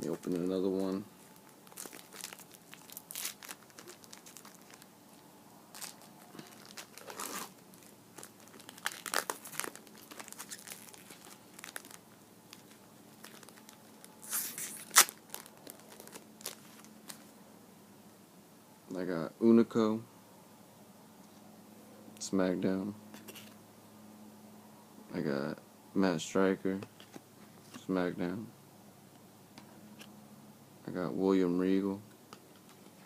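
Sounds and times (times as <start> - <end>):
wrapper tearing and crinkling: 1.6 - 4.9, 5.7 - 17.3.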